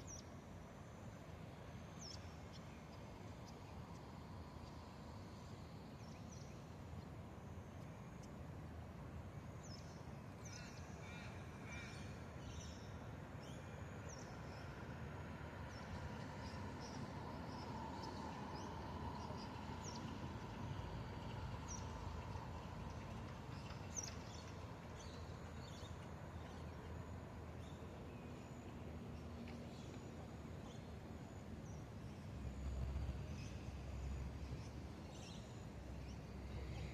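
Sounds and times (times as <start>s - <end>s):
faint hum: 25.1s - 36.9s.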